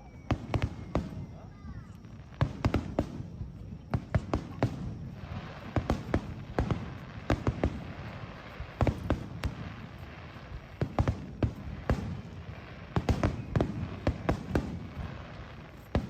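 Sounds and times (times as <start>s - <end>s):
fireworks bangs and pops: 0.0s - 16.0s.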